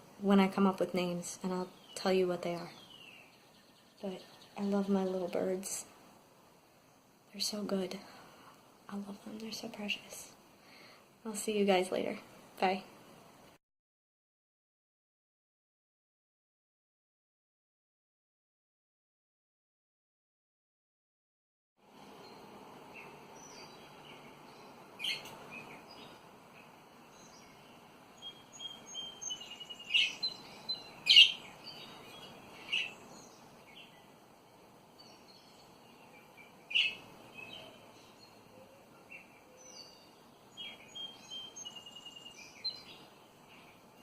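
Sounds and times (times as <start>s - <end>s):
background hiss: 0.0s - 13.6s, 21.8s - 44.0s
budgerigars chirping: 28.2s - 33.8s, 36.7s - 37.8s.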